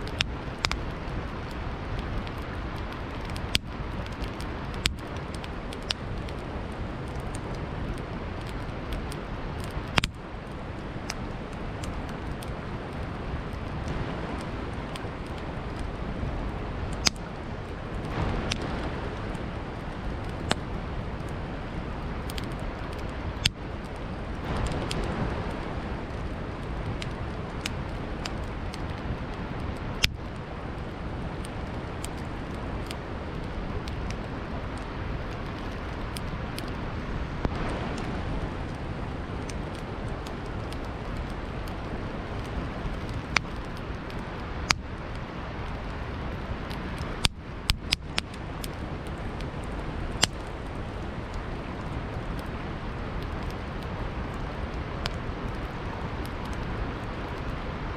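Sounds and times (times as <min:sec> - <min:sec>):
burning wood popping: 0:00.0 - 0:57.9
campfire crackling: 0:00.0 - 0:57.9
steady rushing background: 0:10.6 - 0:44.5.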